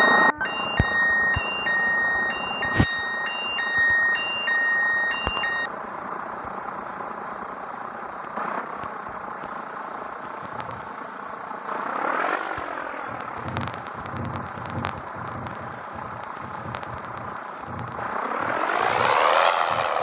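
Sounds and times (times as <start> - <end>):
truck rushing noise: 18.0 - 20.0.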